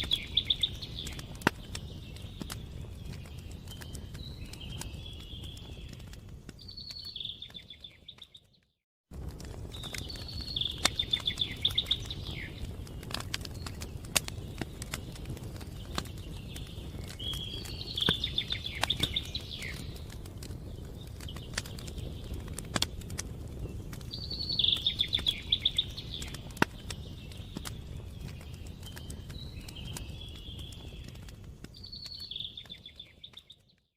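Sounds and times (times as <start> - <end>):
songbird trilling: 0.0 - 1.2, 10.3 - 12.6, 24.2 - 26.5.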